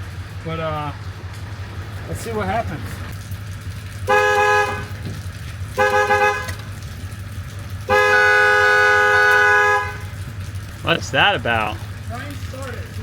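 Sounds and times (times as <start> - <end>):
vehicle horn blasts: 4.1 - 5.0, 5.8 - 6.6, 7.9 - 10.1.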